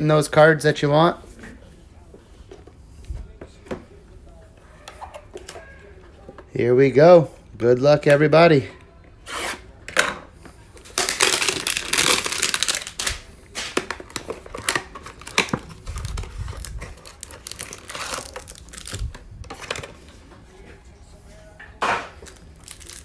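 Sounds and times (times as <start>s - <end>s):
plastic wrapping crinkling: 10.8s - 20.2s, 22.1s - 23.0s
cardboard tearing: 10.9s - 19.0s, 22.2s - 23.0s.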